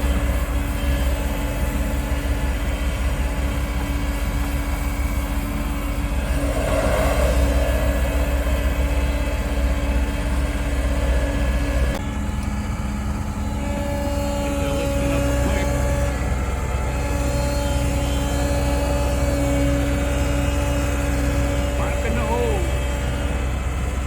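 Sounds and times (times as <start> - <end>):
engine running with low hum: 0.0 - 24.0.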